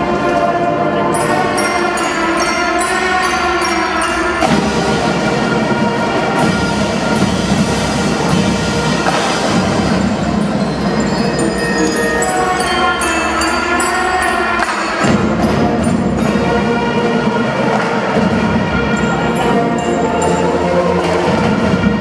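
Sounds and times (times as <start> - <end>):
high bell-like notes: 0.0 - 5.6, 8.4 - 17.3
marching drum band playing: 0.0 - 22.0.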